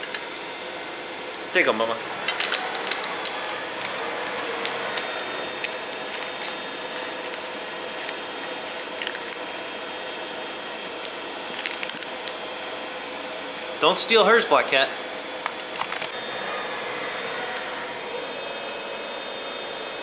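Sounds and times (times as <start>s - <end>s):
room hum: 0.0s - 20.0s
cats chewing treats: 2.2s - 9.5s, 11.5s - 12.4s.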